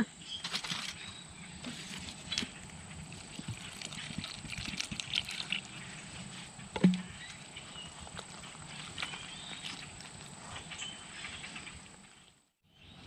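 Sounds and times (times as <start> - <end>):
dough mixed by hand in bowl: 1.6 - 10.7.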